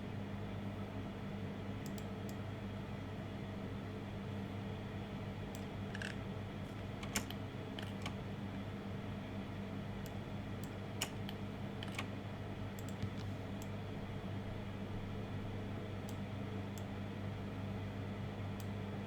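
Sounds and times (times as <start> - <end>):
low electrical hum: 0.0 - 19.0
keyboard and mouse clicks: 5.5 - 6.2, 7.0 - 8.2, 10.0 - 12.1, 12.8 - 13.7.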